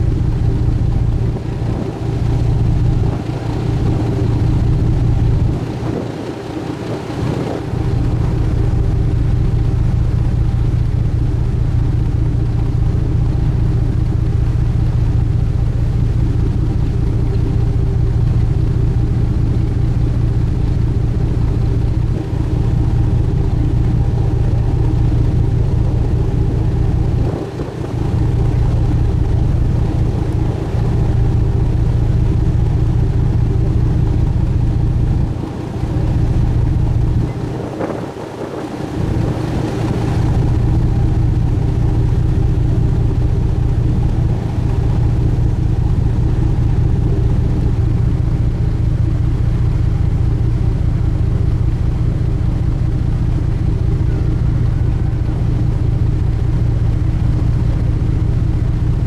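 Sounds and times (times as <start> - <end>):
ship engine drone: 0.0 - 59.0.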